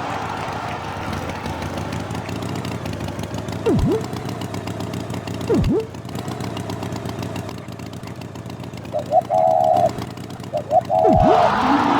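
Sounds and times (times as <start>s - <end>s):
rising toots: 3.6s - 4.1s, 5.5s - 5.9s, 8.9s - 11.9s
cartoon engine rumble: 3.6s - 4.2s, 5.4s - 6.0s, 8.8s - 11.9s
pitch sweep effect: 3.7s - 4.1s, 5.5s - 5.9s, 10.6s - 11.9s.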